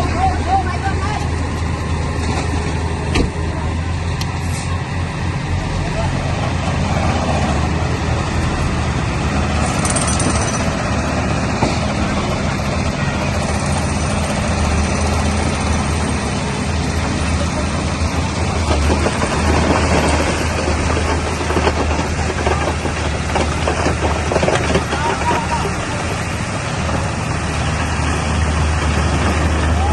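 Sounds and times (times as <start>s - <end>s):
bulldozer diesel engine running: 0.0s - 29.9s
scattered clatter: 9.6s - 10.8s, 17.0s - 26.2s.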